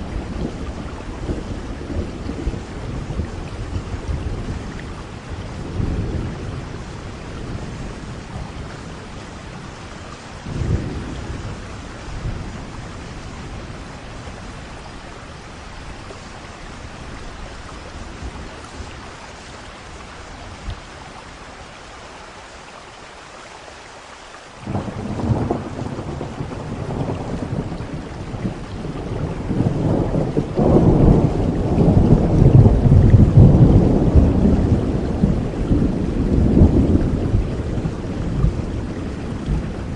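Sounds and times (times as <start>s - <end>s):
rumbling thunder: 0.0s - 15.6s, 24.6s - 39.9s
steady rain: 0.0s - 39.9s
loud thunderclap: 24.6s - 39.9s.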